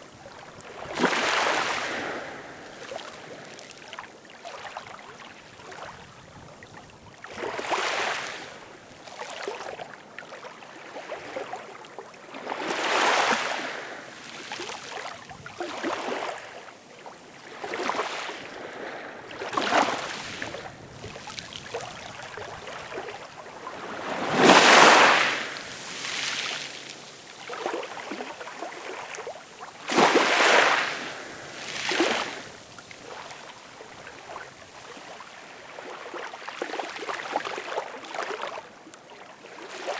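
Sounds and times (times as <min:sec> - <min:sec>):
ocean waves breaking: 0:17.5 - 0:34.5.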